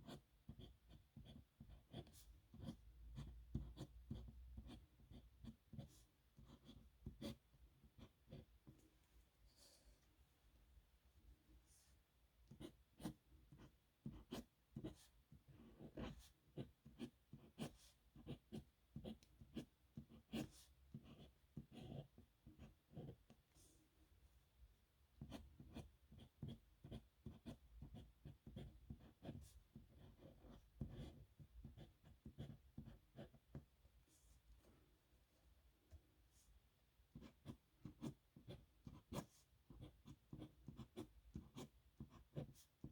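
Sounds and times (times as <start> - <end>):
pen scratching on paper: 0.0 - 8.8, 12.5 - 23.7, 25.2 - 33.6, 37.1 - 42.9.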